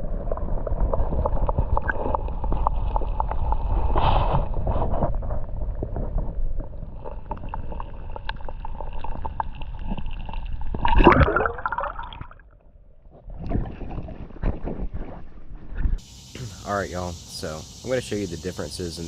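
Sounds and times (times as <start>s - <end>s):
creek water sloshing and gurgling: 6.8s - 12.4s.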